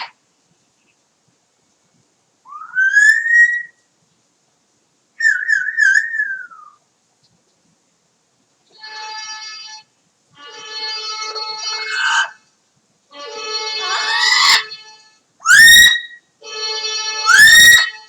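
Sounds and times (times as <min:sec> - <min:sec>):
parrot whistling: 0:02.5 - 0:03.8, 0:05.2 - 0:06.8, 0:13.8 - 0:14.7, 0:15.4 - 0:16.2, 0:17.3 - 0:17.9.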